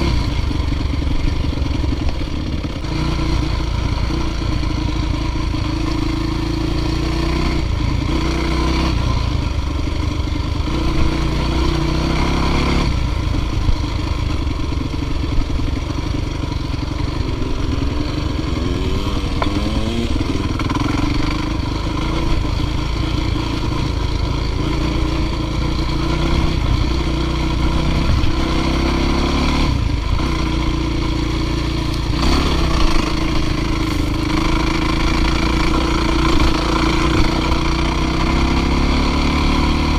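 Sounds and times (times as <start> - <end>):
dirt bike engine under load: 18.5 - 21.3.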